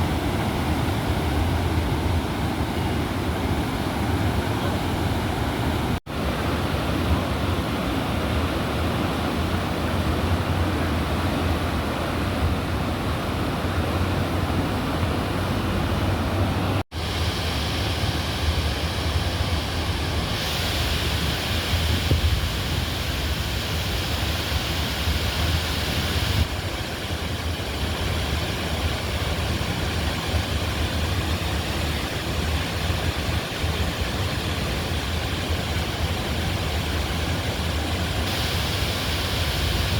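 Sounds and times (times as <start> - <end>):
bright hiss: 17.0 - 26.5, 38.2 - 39.9.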